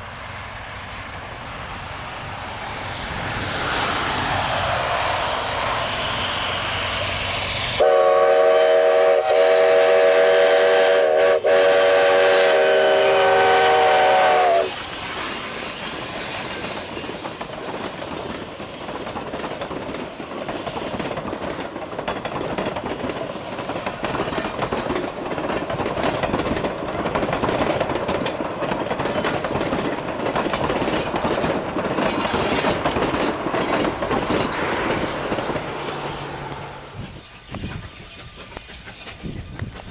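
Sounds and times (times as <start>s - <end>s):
train clatter and hiss: 0.0s - 39.9s
steam locomotive whistle: 7.2s - 14.8s.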